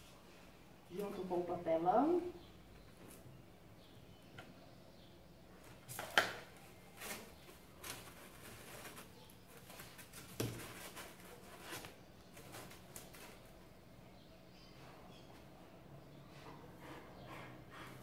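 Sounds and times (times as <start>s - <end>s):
cardboard knocks and rustles: 10.0s - 11.2s.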